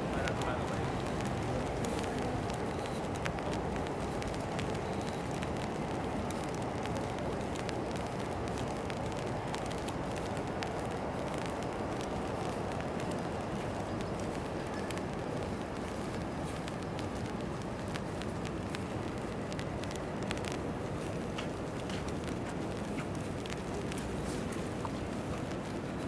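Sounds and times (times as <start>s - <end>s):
rain falling: 0.0s - 26.0s
raindrops ticking: 0.0s - 26.0s.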